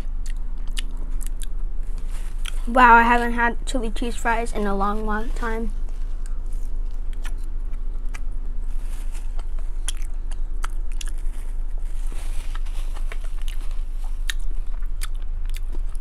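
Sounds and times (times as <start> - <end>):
close chewing mouth clicks: 0.0 - 1.6, 6.2 - 8.3, 9.4 - 11.3, 12.5 - 16.0
steady low hum: 0.0 - 16.0.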